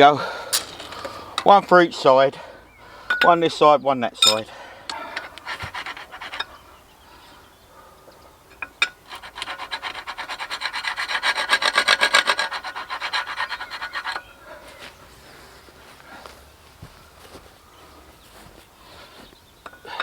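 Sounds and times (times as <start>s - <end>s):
hand tool rasping on steel: 0.0s - 1.7s, 4.1s - 6.8s, 8.5s - 14.8s.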